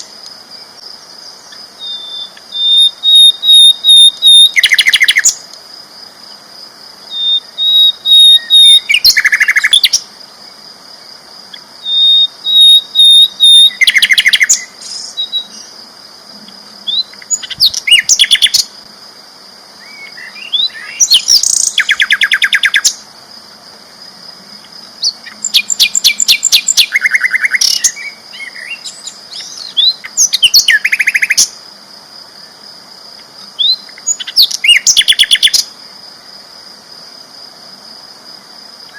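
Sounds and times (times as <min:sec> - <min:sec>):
flycatcher trilling song: 0:00.0 - 0:05.6, 0:07.0 - 0:18.9, 0:19.8 - 0:23.1, 0:24.2 - 0:31.6, 0:33.4 - 0:35.8.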